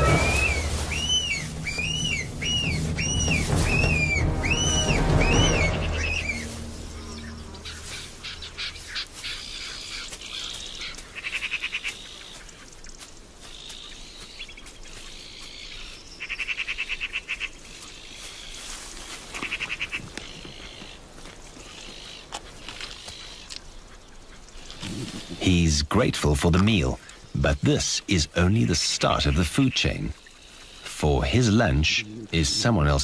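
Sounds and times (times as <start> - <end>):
rapid bird trills: 0.0 - 25.4
birds chirping and calling: 0.0 - 33.0.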